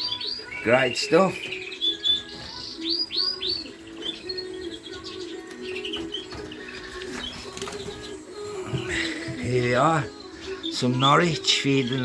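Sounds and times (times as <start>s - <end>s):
cage birds chirping: 0.0s - 12.0s.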